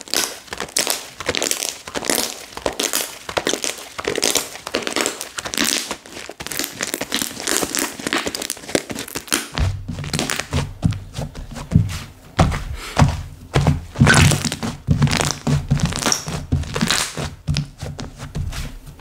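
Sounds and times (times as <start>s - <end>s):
slime squishing and popping: 0.0s - 10.7s, 14.0s - 17.7s
dull low thuds: 9.6s - 16.8s.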